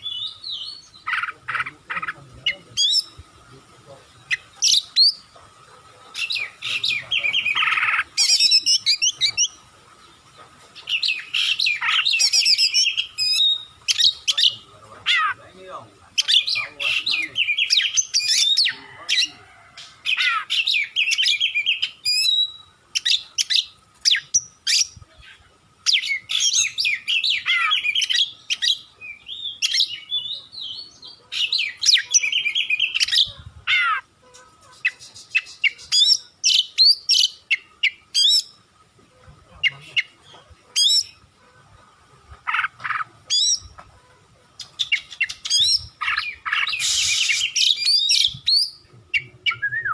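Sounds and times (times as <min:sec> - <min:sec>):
bird singing whistled phrases: 0:44.8 - 0:49.9.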